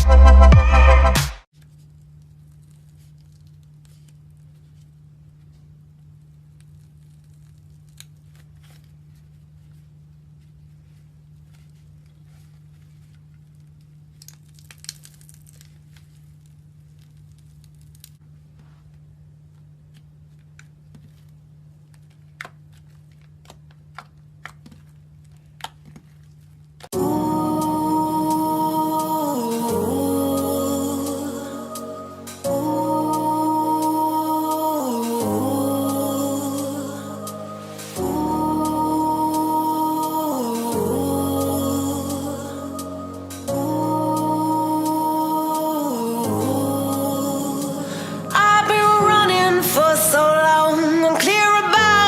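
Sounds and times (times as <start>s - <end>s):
steady low hum: 27.0s - 49.8s.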